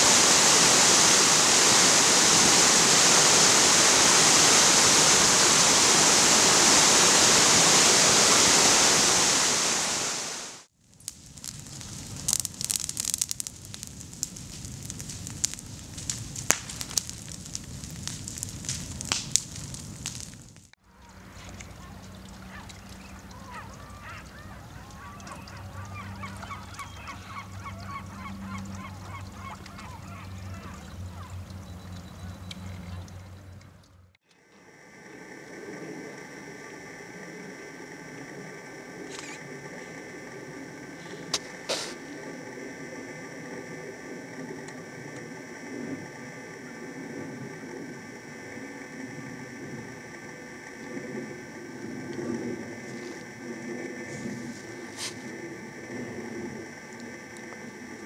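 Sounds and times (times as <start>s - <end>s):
loud rushing water: 0.0s - 10.7s
sharp clicks and crackles: 10.8s - 23.0s
waterfowl calling: 21.0s - 33.5s.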